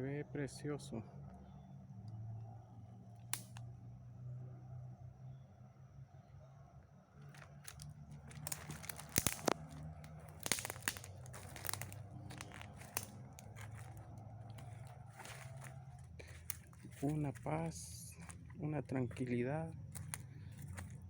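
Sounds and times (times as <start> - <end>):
crunching and crackling clicks: 3.1 - 3.7, 7.2 - 21.0.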